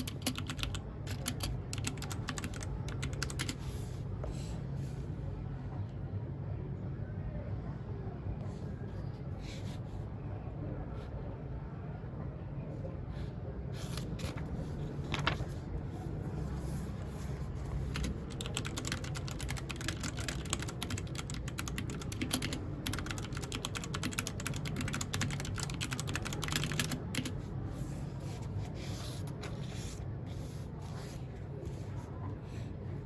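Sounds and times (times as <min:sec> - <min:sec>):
mechanical keyboard typing: 0:00.0 - 0:03.6, 0:17.6 - 0:27.4.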